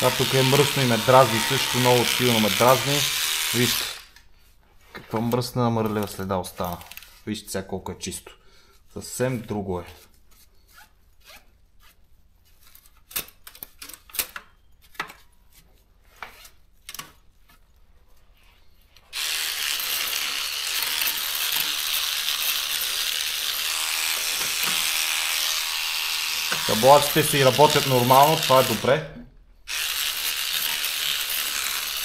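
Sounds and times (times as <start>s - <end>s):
electric cleaning brush running: 0.0s - 4.1s, 19.1s - 29.0s, 29.7s - 32.0s.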